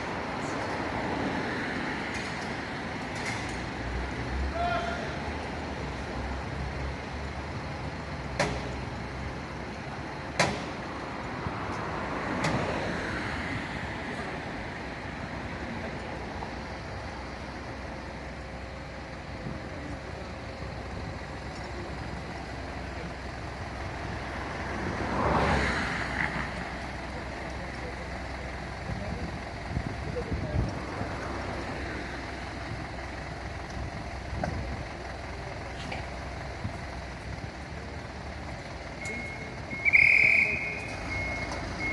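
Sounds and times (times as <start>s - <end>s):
vehicle and street noise: 0.0s - 41.9s
sharp knocks: 10.4s - 10.8s.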